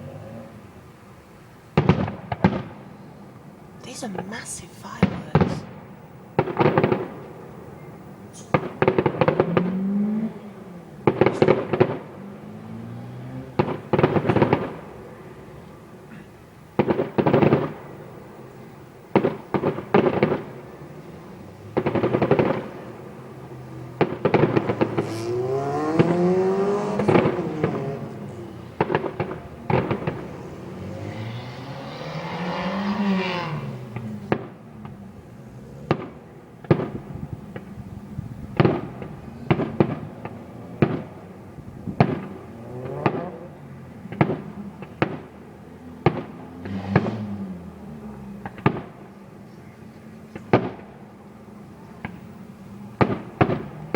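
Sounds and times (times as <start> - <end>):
fireworks crackling bursts: 1.0 - 53.9
fireworks bangs: 1.7 - 49.3, 50.2 - 53.9
exploding shells: 24.0 - 34.5.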